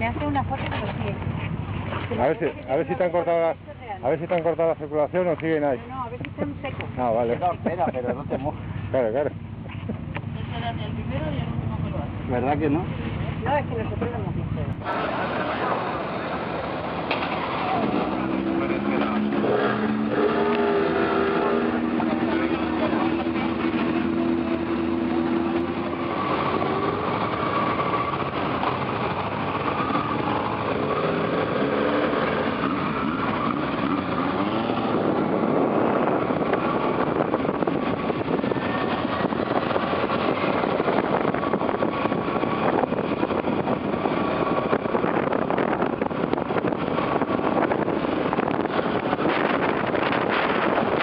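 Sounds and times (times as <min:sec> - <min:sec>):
motorcycle engine running: 0:00.0 - 0:51.0
road noise: 0:00.0 - 0:51.0
wind rushing: 0:14.6 - 0:51.0.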